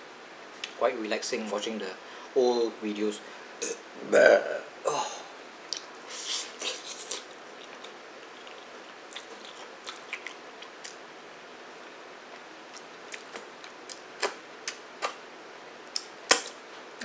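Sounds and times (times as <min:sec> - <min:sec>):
man chewing noodles: 0:05.7 - 0:11.1, 0:11.7 - 0:15.2.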